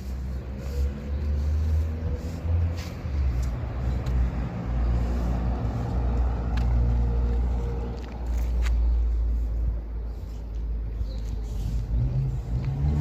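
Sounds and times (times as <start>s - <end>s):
vehicle low rumble: 0.0s - 13.0s.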